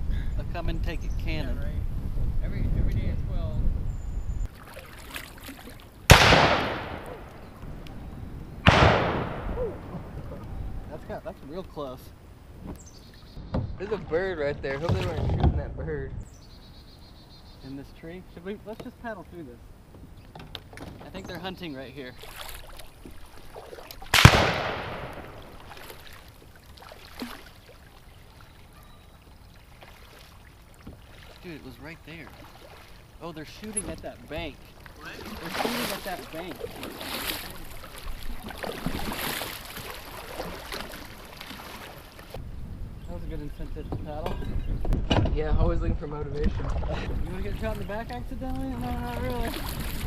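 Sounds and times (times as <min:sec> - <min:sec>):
gunshots echoing: 0:06.1 - 0:07.6, 0:08.6 - 0:10.1, 0:24.1 - 0:25.8.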